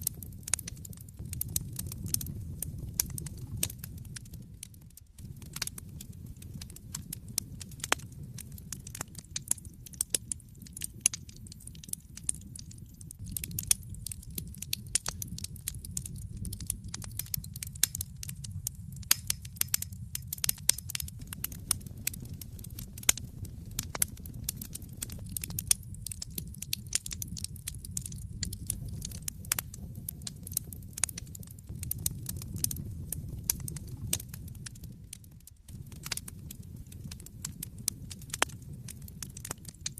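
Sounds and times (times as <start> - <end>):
fire crackling and popping: 0.0 - 39.9
low rumble of burning logs: 0.0 - 39.9.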